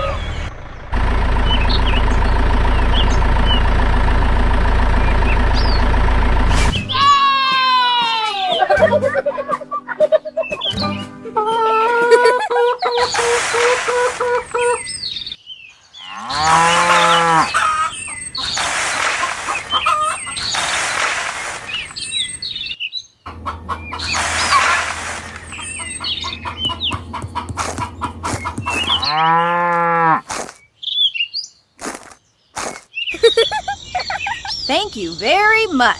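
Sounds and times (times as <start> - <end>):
birds chirping: 0.0 - 7.2, 7.9 - 35.9
cow mooing: 16.1 - 17.6, 28.9 - 30.3
bursts of hissing noise: 31.8 - 32.9.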